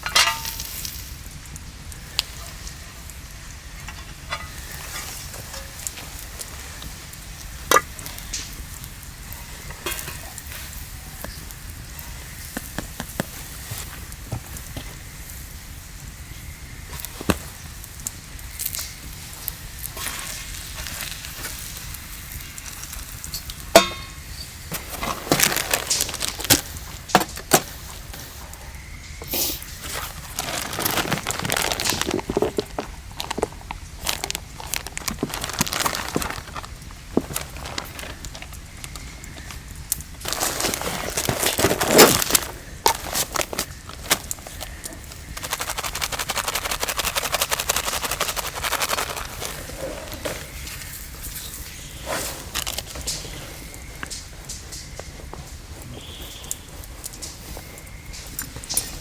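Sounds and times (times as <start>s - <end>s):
sizzling over a fire: 0.0s - 59.0s
taps and rustles: 7.7s - 15.1s, 22.6s - 51.7s, 52.4s - 59.0s.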